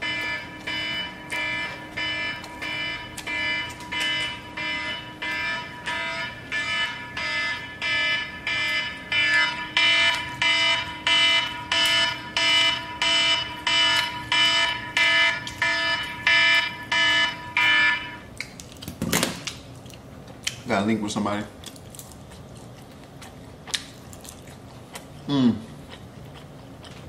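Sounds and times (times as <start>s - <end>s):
electronic alarm beeping: 0.0s - 18.3s.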